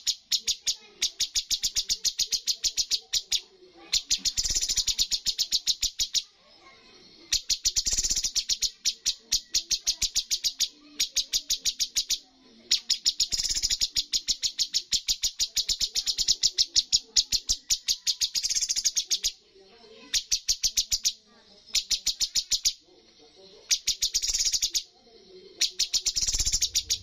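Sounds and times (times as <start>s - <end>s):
songbird rapid repeated notes: 0.0s - 6.3s, 7.4s - 19.4s, 23.7s - 24.8s, 25.6s - 27.0s.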